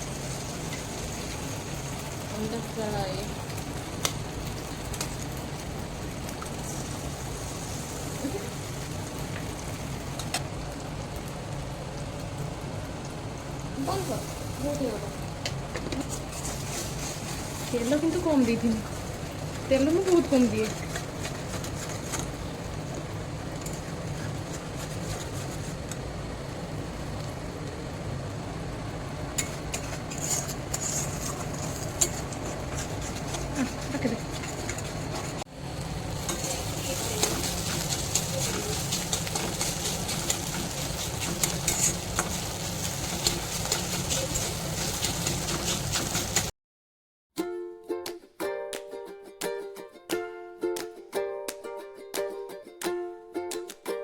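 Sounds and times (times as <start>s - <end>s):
food sizzling in oil: 0.0s - 46.5s
pan cooking rumble: 0.0s - 46.5s
utensil clicking against pan: 29.4s - 35.3s, 36.2s - 46.5s.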